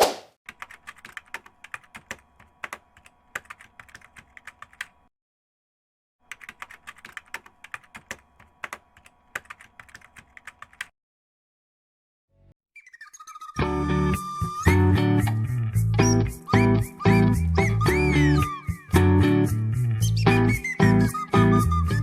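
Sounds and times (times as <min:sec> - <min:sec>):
rapid keyboard clicking: 0:00.5 - 0:05.1, 0:06.2 - 0:10.9.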